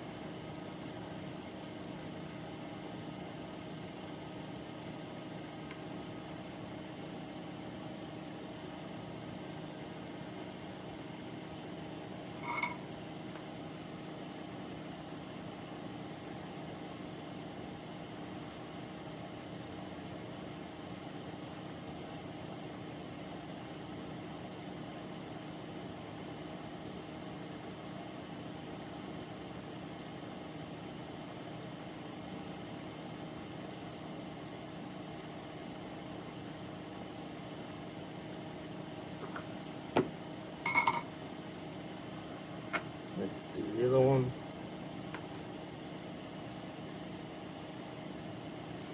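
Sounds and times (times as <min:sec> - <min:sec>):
background hum with held tones: 0:00.0 - 0:48.9
ringing metallic clink: 0:40.7 - 0:41.1.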